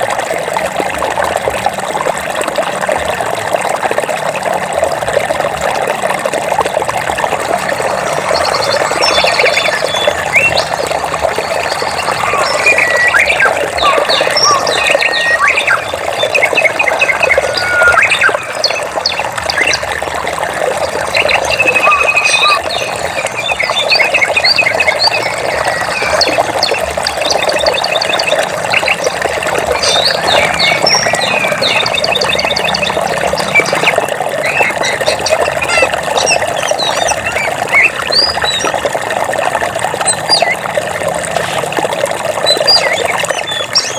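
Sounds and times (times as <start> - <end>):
running stream water: 0.0 - 43.9
birds chirping and trilling: 7.5 - 20.0, 20.6 - 38.9, 40.0 - 40.6, 42.4 - 43.9.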